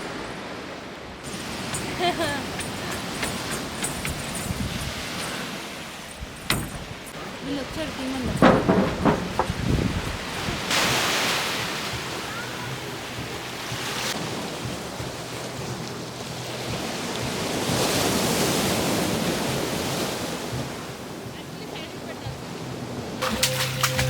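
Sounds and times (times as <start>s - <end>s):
waves breaking on shore: 0.0s - 24.0s.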